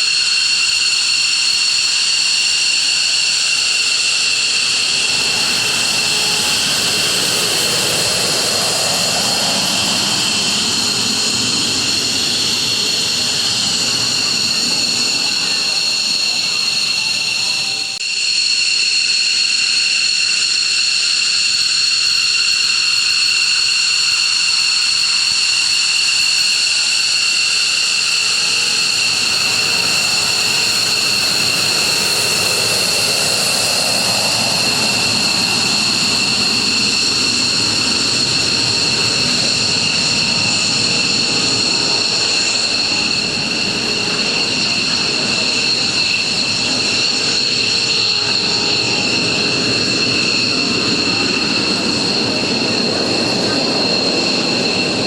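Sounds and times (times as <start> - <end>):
jet engine high-pitched whine: 0.0 - 55.0
jet engine rushing rumble: 2.8 - 18.0, 27.3 - 55.0.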